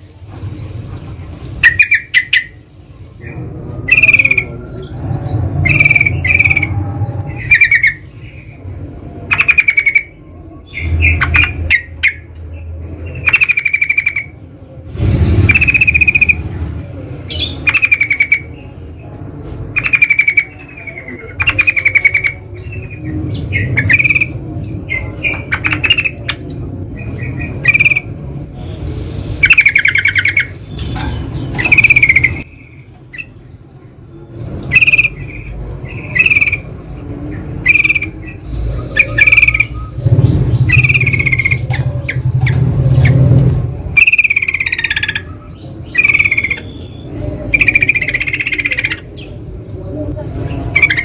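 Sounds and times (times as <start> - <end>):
birds bubbly chattering calls: 1.4 - 8.7, 15.0 - 16.5, 19.7 - 33.4, 34.6 - 49.8, 50.4 - 51.0
low rumble: 2.7 - 9.3, 34.2 - 44.0.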